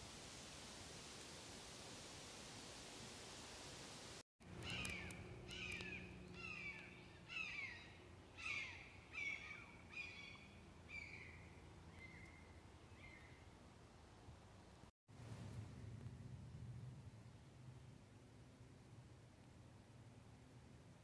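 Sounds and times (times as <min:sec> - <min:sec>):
steady hiss: 0:00.0 - 0:04.2.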